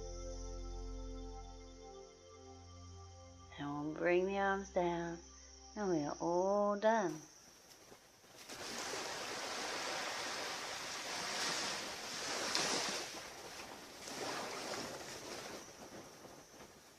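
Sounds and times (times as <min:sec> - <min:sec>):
waves washing onto beach: 0:08.4 - 0:16.9.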